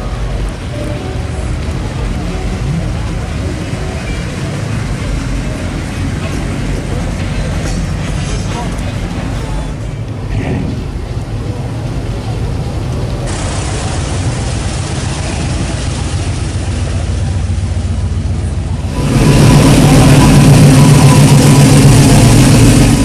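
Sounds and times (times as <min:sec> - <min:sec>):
cars driving by: 0:00.0 - 0:23.0
loud car engine passing close: 0:18.8 - 0:23.0.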